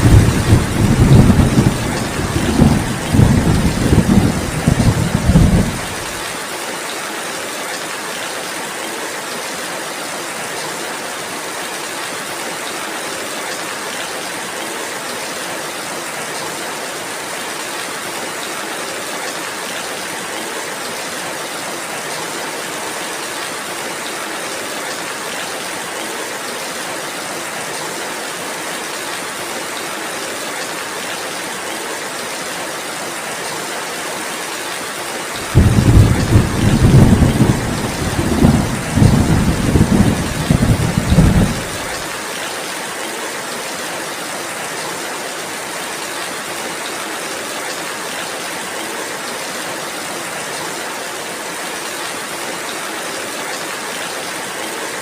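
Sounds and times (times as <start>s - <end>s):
steady rainfall hiss: 0.0s - 55.0s.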